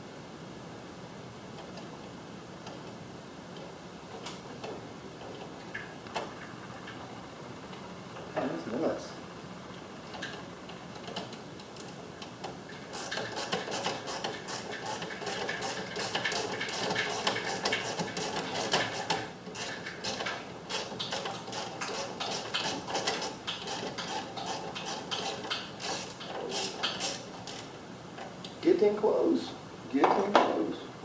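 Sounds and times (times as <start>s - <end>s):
hand tools clicking and ticking: 12.9s - 27.7s.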